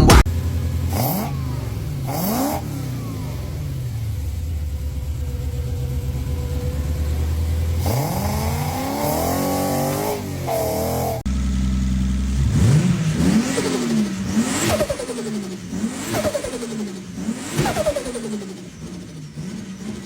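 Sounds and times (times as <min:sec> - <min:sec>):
deep bass line: 0:00.0 - 0:02.2, 0:03.0 - 0:13.5
car engine revving: 0:00.0 - 0:20.0.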